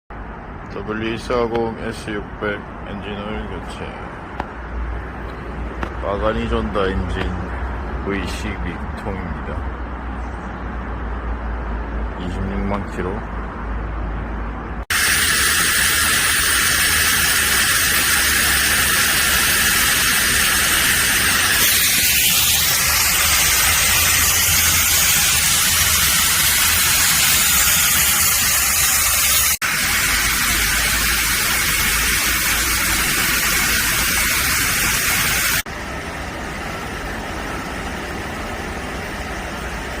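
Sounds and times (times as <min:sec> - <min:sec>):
loud hissing: 0:14.9 - 0:35.7.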